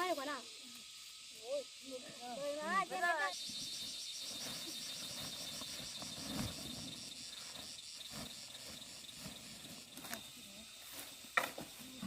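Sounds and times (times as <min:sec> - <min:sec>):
insect chirping: 0:00.0 - 0:12.0
soft rustling: 0:04.2 - 0:12.0.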